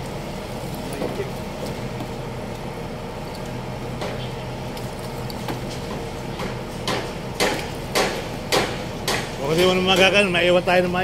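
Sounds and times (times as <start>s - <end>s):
engine hum: 0.0s - 11.0s
scattered knocks: 6.4s - 10.2s.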